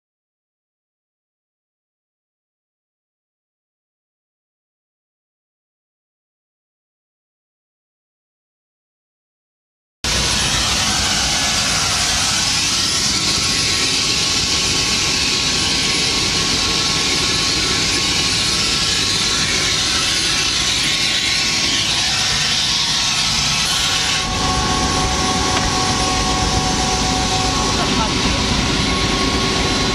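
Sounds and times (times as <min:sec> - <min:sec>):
helicopter rotor and engine din: 0:10.1 - 0:29.9.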